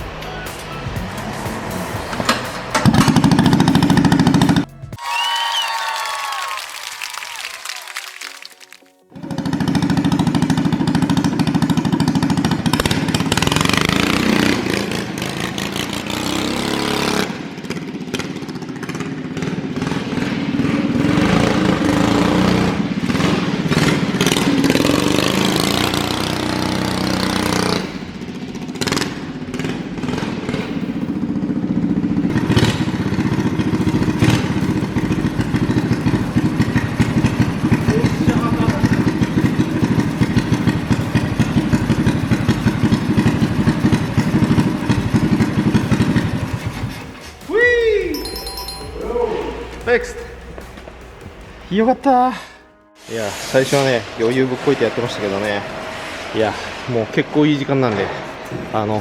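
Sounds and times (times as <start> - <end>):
small engine revving: 9.2 - 31.4, 32.3 - 47.2.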